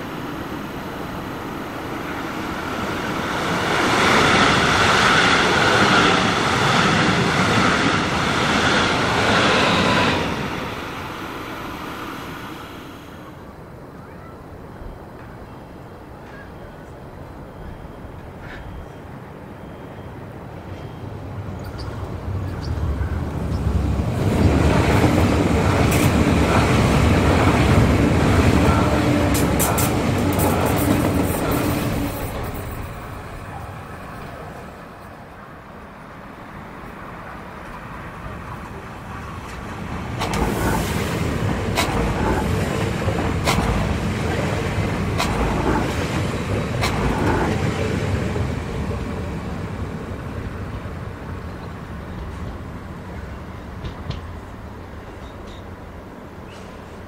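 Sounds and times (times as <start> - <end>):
train wheel rumble: 0.0 - 13.5, 21.1 - 57.0
rail clicks: 20.6 - 35.4, 36.1 - 57.0.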